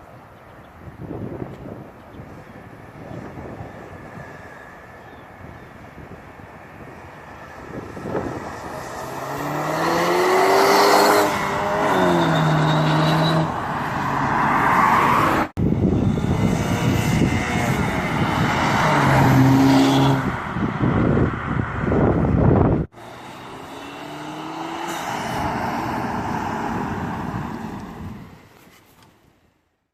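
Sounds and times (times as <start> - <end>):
turbocharged car engine accelerating: 7.3 - 21.1, 21.8 - 28.2.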